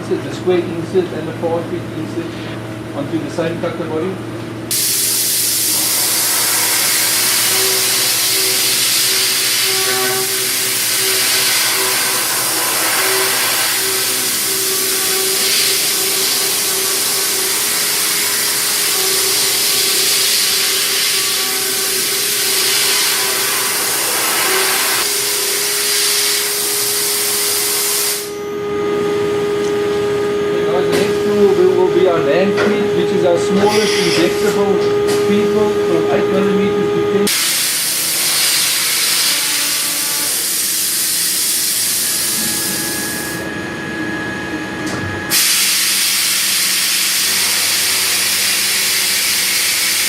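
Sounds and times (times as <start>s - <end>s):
cnc machine milling: 3.4s - 50.0s
coolant spray hissing: 4.7s - 28.3s, 37.3s - 42.4s, 45.3s - 50.0s
spinning cutter tone: 5.4s - 37.3s.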